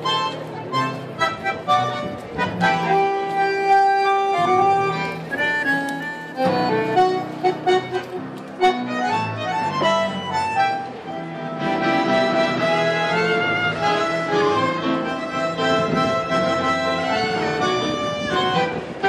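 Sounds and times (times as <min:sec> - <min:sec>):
accordion playing chords: 0:00.0 - 0:19.0.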